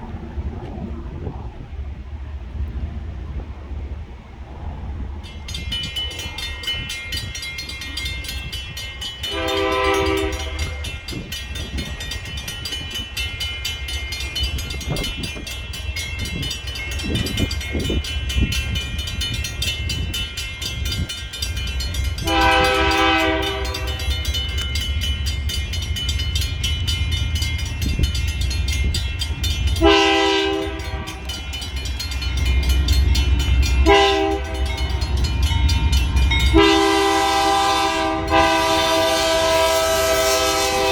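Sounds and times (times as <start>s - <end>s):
moving train rumble: 0.0s - 40.9s
train air horn blasts: 9.3s - 10.8s, 22.2s - 24.2s, 29.8s - 31.3s, 33.8s - 34.8s, 36.5s - 40.9s.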